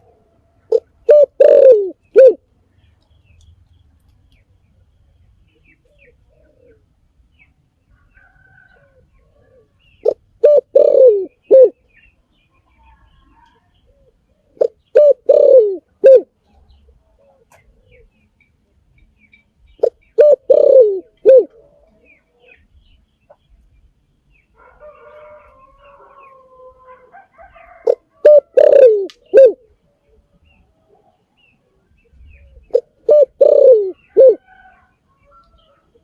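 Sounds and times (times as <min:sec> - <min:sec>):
faint soft cooing: 0:00.0 - 0:02.4, 0:08.2 - 0:11.8, 0:12.7 - 0:18.1, 0:19.8 - 0:22.6, 0:25.7 - 0:30.2, 0:32.4 - 0:35.4
dove cooing: 0:00.0 - 0:02.5, 0:05.6 - 0:06.9, 0:08.4 - 0:11.8, 0:13.9 - 0:18.1, 0:19.8 - 0:22.6, 0:24.6 - 0:30.2, 0:32.2 - 0:36.0.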